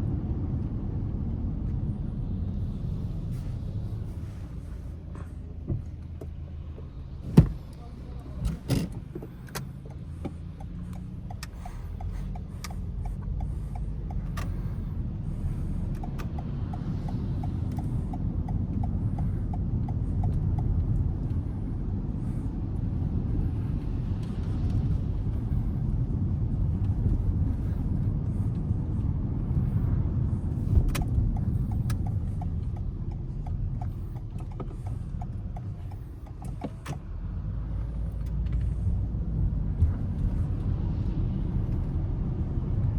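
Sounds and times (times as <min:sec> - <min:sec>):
car engine and tyres rumbling: 0:00.0 - 0:42.9
light regular ticking: 0:07.7 - 0:39.0.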